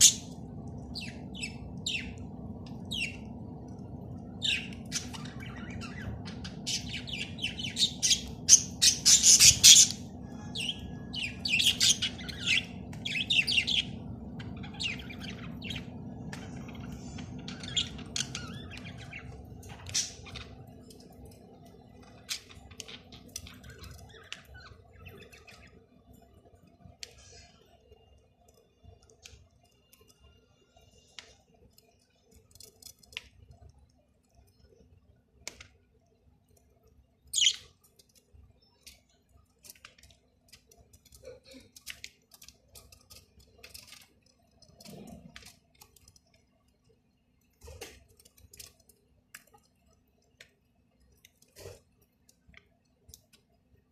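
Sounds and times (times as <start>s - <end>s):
bird chirping: 0.0s - 3.4s, 4.2s - 21.1s, 37.3s - 37.9s
faint steady hum: 0.0s - 53.9s.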